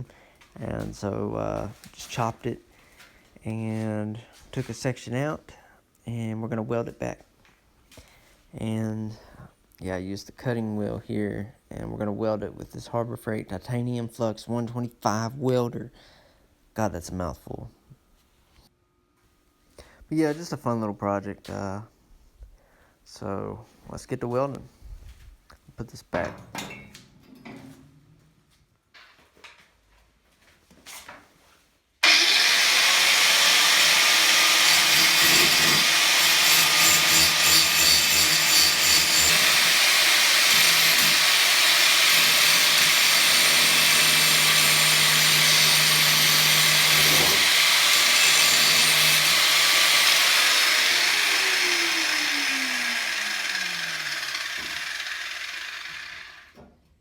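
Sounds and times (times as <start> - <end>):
angle grinder grinding steel: 32.0 - 56.5.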